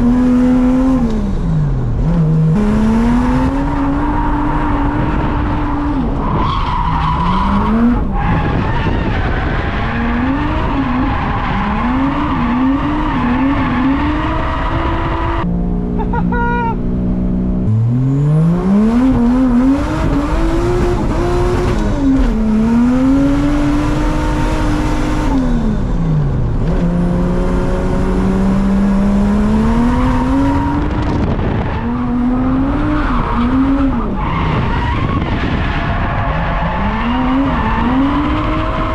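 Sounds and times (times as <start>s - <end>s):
car engine revving: 0.0s - 38.9s
tyres squealing and skidding: 3.7s - 15.4s, 29.9s - 38.9s.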